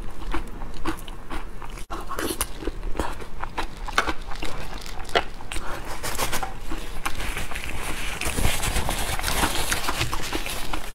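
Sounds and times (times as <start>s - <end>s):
chewing and mouth clicks: 0.0s - 8.4s.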